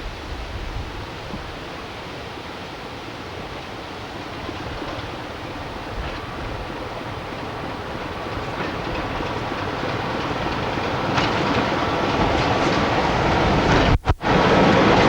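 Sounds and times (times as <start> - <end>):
train rumbling: 0.0 - 15.0
wheels clicking over rail joints: 3.3 - 15.0.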